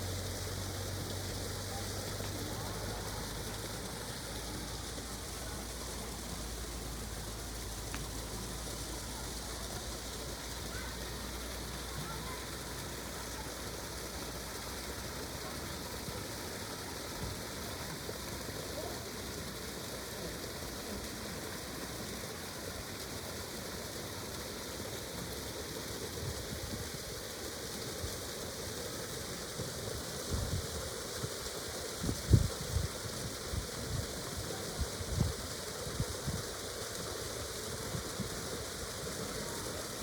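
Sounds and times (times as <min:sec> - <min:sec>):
outdoor rushing hiss: 0:00.0 - 0:26.0.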